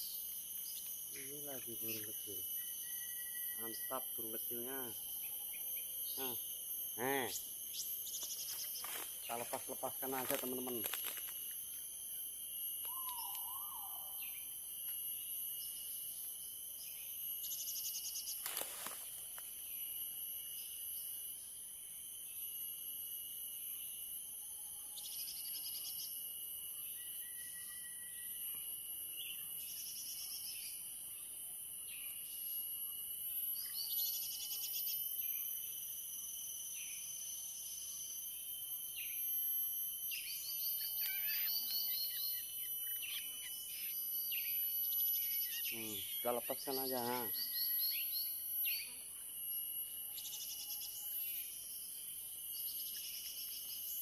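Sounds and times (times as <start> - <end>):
recorded bird chirps: 0.0 - 6.4, 12.8 - 14.7, 40.1 - 49.0
steady high-pitched whine: 0.0 - 54.0.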